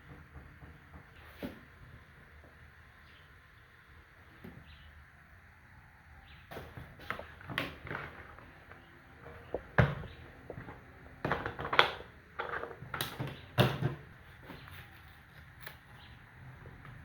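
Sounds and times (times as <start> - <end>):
objects clicking and knocking: 6.5 - 14.8.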